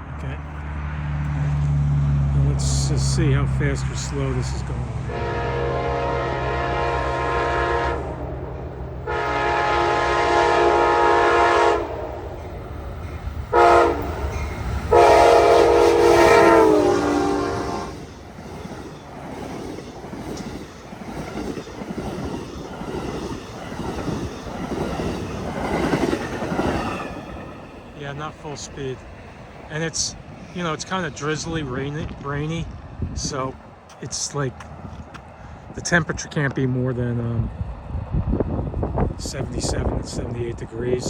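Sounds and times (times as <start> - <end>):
train cars rumbling by: 0.0 - 41.0
locomotive air horn blasts: 5.1 - 8.2, 9.0 - 12.4, 13.5 - 18.1.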